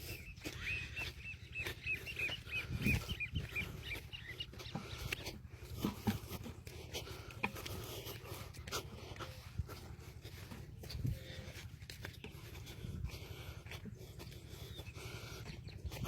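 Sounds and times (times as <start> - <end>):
bird chirping: 0.0 - 5.3, 13.9 - 16.0.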